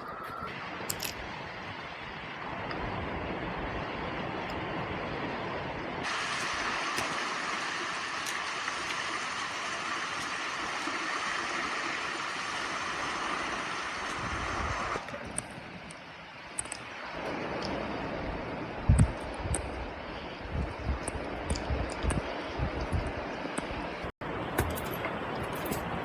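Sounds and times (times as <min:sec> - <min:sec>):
heavy rain hissing: 0:06.0 - 0:15.0.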